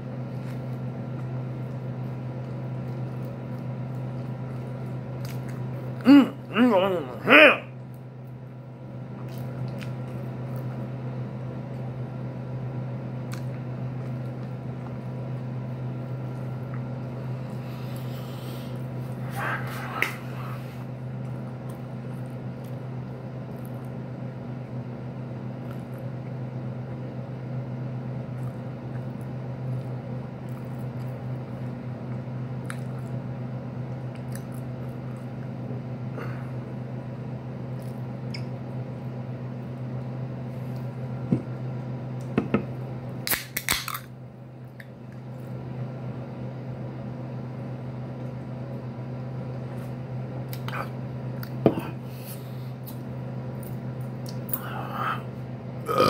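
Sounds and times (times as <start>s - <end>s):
steady low hum: 0.0s - 56.0s
wet chewing and mouth smacking: 0.4s - 6.0s, 9.2s - 10.8s, 32.6s - 33.2s, 34.1s - 35.4s, 37.7s - 38.6s, 53.6s - 54.7s.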